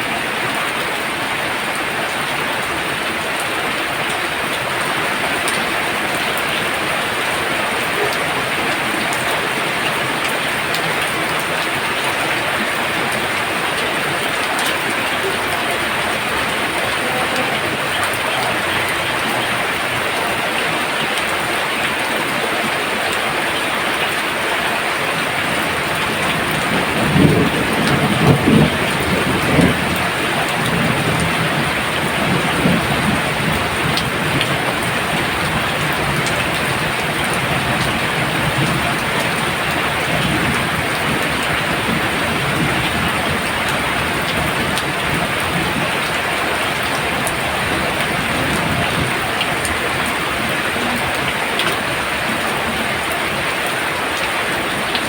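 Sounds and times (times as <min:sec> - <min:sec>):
heavy rain pouring: 0:00.0 - 0:55.0
thunder rumbling: 0:25.1 - 0:53.6.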